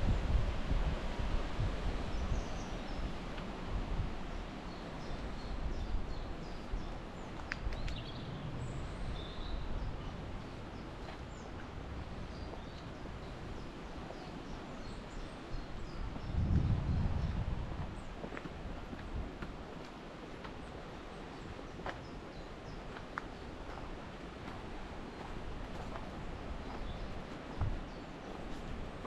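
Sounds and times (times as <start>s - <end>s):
wind buffeting microphone: 0.0s - 29.0s
wind gusting through trees: 0.0s - 29.0s
small birds chirping: 4.7s - 18.3s, 25.0s - 28.7s.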